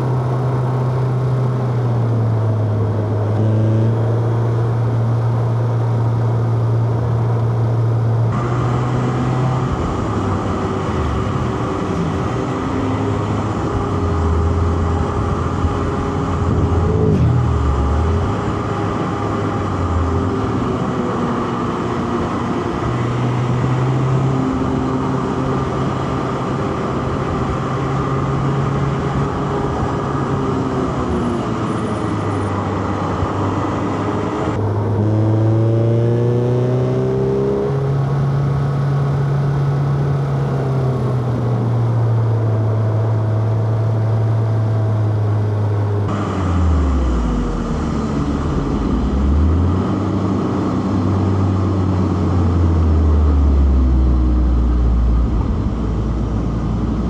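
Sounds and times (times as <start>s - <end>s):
car engine revving through gears: 0.0s - 57.0s
rushing noise: 8.3s - 23.2s, 46.0s - 57.0s.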